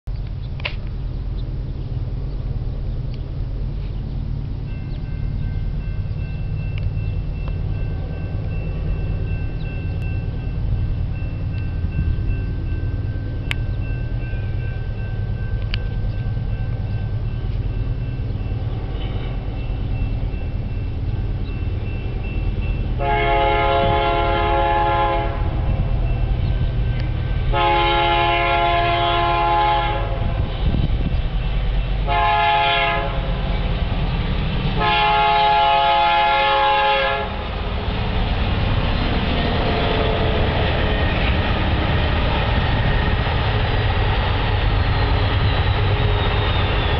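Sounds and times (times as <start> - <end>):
diesel train engine rumble: 0.1 - 46.9
locomotive air horn blasts: 23.0 - 25.7, 27.5 - 30.8, 32.0 - 33.3, 34.8 - 37.4.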